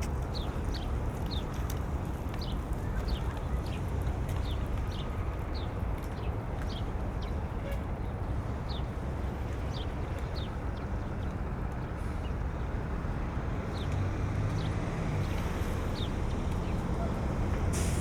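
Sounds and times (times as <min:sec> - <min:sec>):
distant engines: 0:09.1 - 0:18.0.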